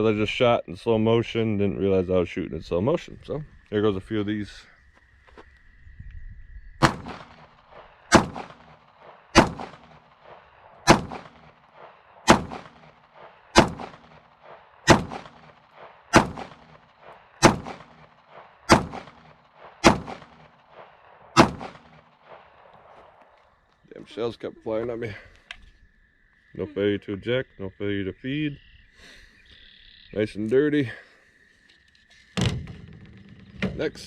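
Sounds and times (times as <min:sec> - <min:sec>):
pistol shots: 0:06.8 - 0:23.0.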